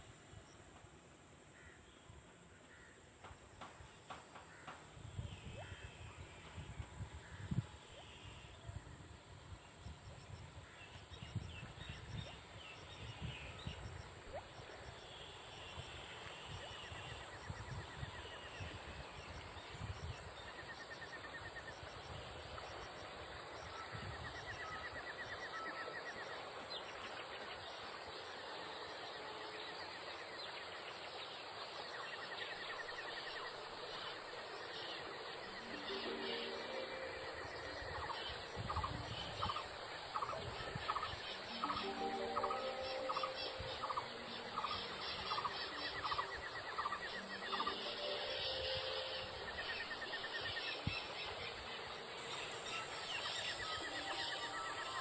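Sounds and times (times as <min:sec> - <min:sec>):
bird calls and trills: 0:01.5 - 0:55.0
wind buffeting microphone: 0:04.8 - 0:20.8, 0:21.4 - 0:24.7, 0:37.3 - 0:41.8.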